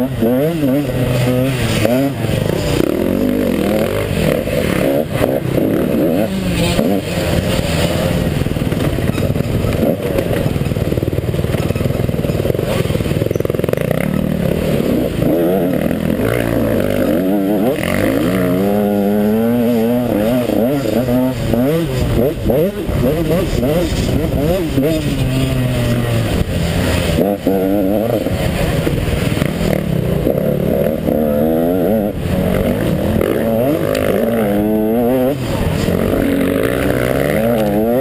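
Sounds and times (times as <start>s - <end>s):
dirt bike engine revving: 0.0s - 38.0s
knocks and clatter from bike: 0.2s - 17.0s.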